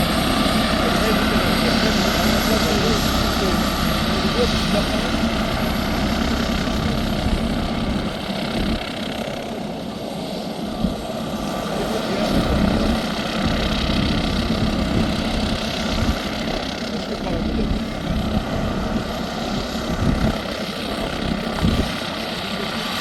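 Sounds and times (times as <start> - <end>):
rotor hum: 0.0 - 9.4, 10.9 - 23.0
helicopter turbine whine: 0.0 - 23.0.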